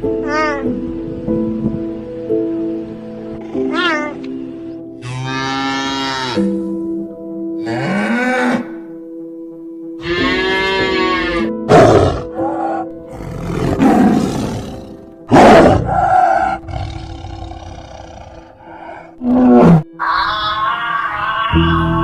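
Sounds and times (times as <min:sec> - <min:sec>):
background music: 0:00.0 - 0:22.0
large animal roaring: 0:10.0 - 0:22.0.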